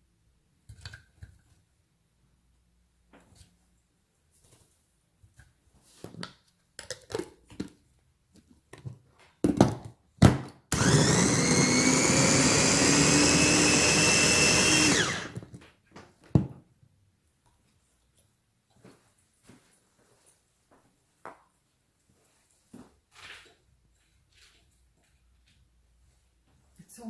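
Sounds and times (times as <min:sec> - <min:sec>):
food processor running: 0:10.7 - 0:15.5.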